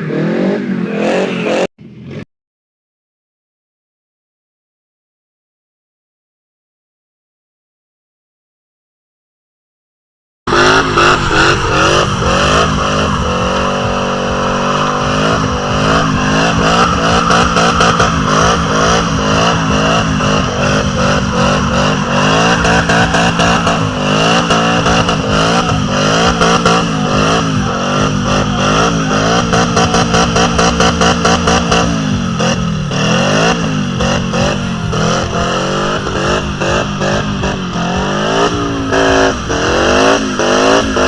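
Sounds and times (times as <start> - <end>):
car engine revving: 0.0 - 2.2, 10.5 - 41.0.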